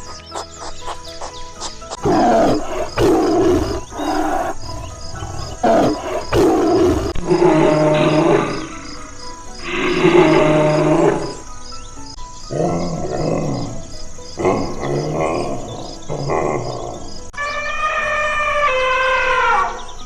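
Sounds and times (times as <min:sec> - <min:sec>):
big cat growling and roaring: 0:02.0 - 0:09.0, 0:09.6 - 0:11.4, 0:12.5 - 0:17.2.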